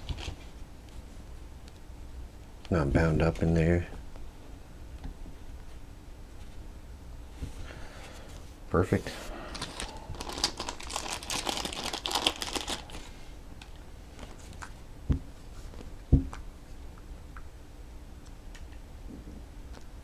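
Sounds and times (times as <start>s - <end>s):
packaging crinkling and clicking: 9.5s - 13.0s.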